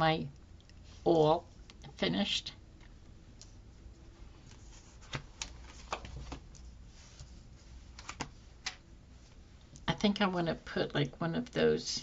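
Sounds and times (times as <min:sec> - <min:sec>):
paper rustling and tapping: 0:05.0 - 0:07.3.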